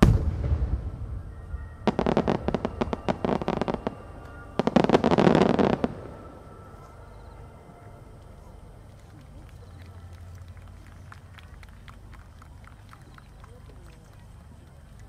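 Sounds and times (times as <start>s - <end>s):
firework crackling pops: 0.0s - 6.3s
firework burst rumbling: 0.0s - 6.8s.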